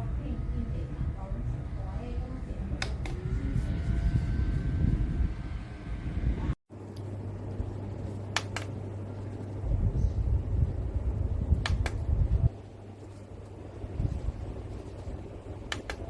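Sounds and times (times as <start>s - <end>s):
airflow rumbling on microphone: 0.0s - 6.6s, 7.2s - 16.0s
desk fan humming: 0.0s - 16.0s
sharp clicks: 8.3s - 8.8s, 11.6s - 12.0s, 15.7s - 16.0s.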